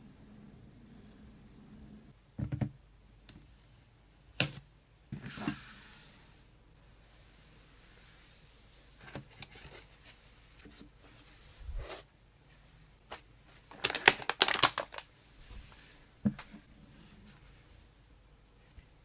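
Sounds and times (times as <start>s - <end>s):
packaging rustling and crinkling: 13.6s - 15.8s.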